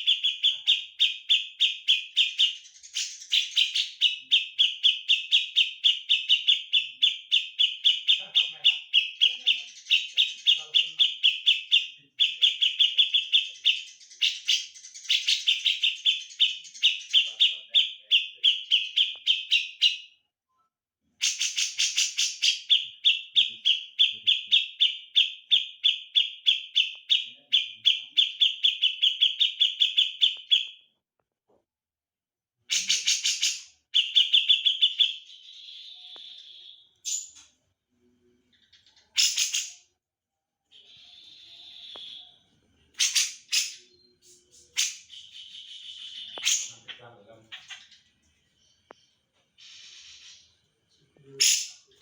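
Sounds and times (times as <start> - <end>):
songbird chirping rapidly: 0.0 - 20.3, 21.1 - 31.0, 32.7 - 37.6, 38.2 - 40.0, 40.7 - 52.0.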